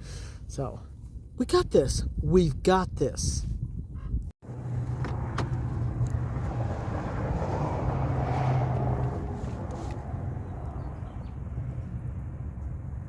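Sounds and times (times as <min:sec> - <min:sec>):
engine idling with low hum: 0:09.1 - 0:13.0.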